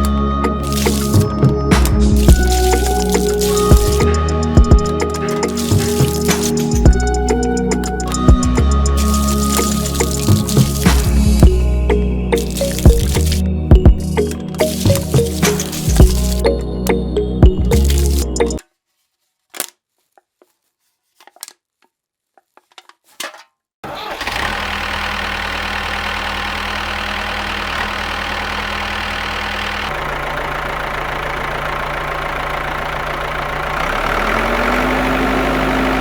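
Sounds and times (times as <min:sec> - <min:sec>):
motor humming: 0:00.0 - 0:18.6.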